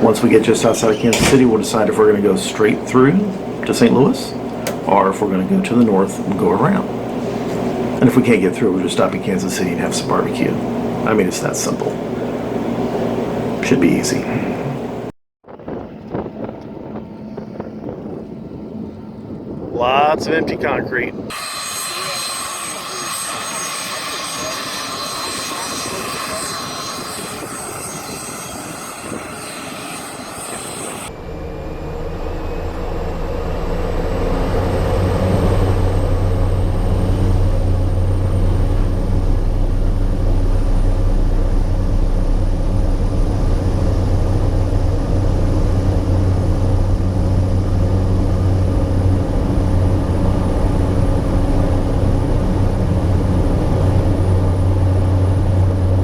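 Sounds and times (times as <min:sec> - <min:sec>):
turboprop engine drone: 0:00.0 - 0:56.0
faint high whine: 0:15.7 - 0:56.0.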